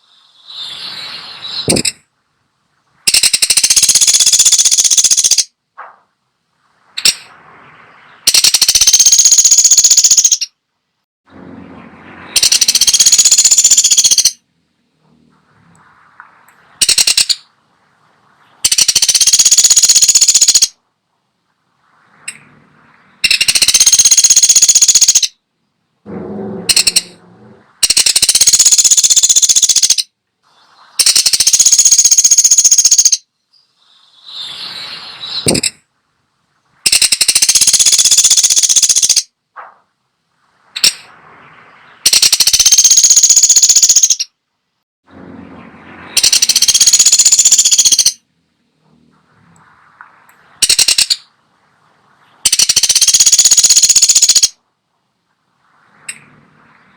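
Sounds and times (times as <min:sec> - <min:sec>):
woodpecker rattling trill calls: 0:03.1 - 0:05.6, 0:08.3 - 0:10.6, 0:12.4 - 0:14.4, 0:16.8 - 0:17.5, 0:18.6 - 0:20.8, 0:23.2 - 0:25.4, 0:26.7 - 0:27.2, 0:27.8 - 0:30.1, 0:31.0 - 0:33.3, 0:36.9 - 0:39.3, 0:42.1 - 0:44.3, 0:46.2 - 0:48.2, 0:50.6 - 0:51.3, 0:52.4 - 0:54.6.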